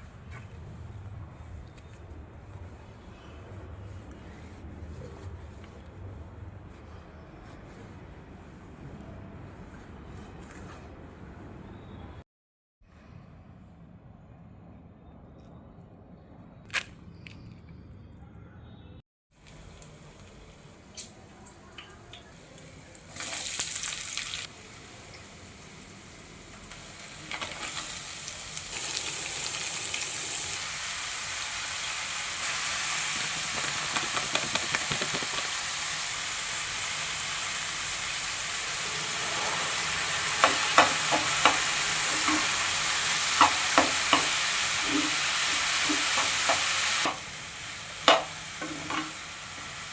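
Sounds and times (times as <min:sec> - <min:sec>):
food sizzling in hot oil: 0:22.6 - 0:49.9
utensil tapping against pan: 0:33.6 - 0:35.5, 0:40.4 - 0:41.6.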